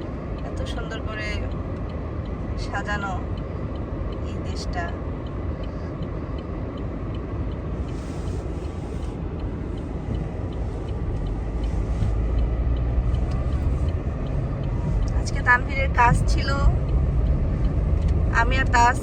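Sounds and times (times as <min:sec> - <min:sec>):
car road and engine rumble: 0:00.0 - 0:19.0
faint high ticks: 0:04.9 - 0:15.5.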